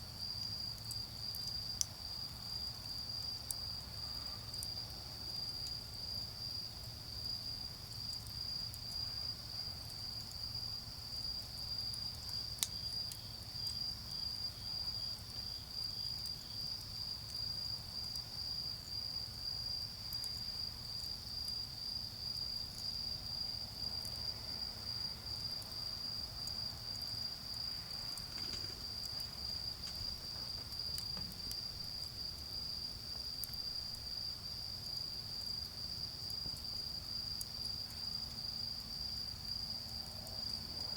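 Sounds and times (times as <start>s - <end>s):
insects trilling: 0.2s - 40.9s
charcoal fire crackling: 5.3s - 38.3s
distant road traffic rumble: 25.7s - 32.2s.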